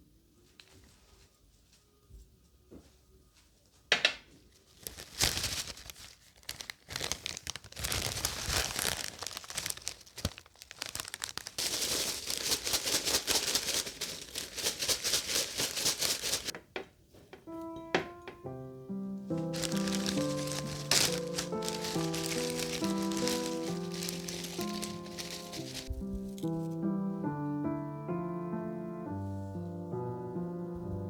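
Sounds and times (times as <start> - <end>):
dried petals crackling: 4.5 - 16.6, 19.2 - 26.9.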